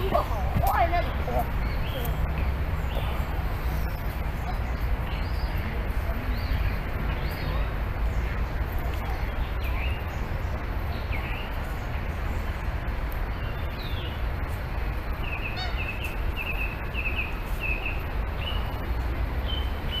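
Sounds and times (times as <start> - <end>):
birds calling: 0.0 - 12.7, 13.3 - 20.0
steady low rumble: 0.0 - 20.0.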